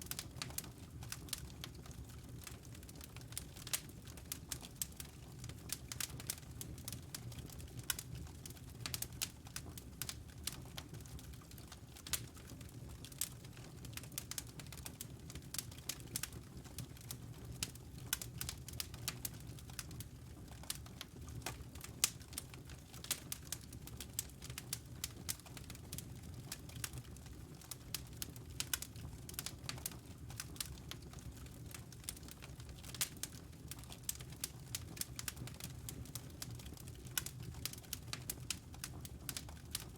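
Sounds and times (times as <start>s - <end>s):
low rumble of flames: 0.0s - 39.9s
campfire crackling: 13.1s - 39.9s.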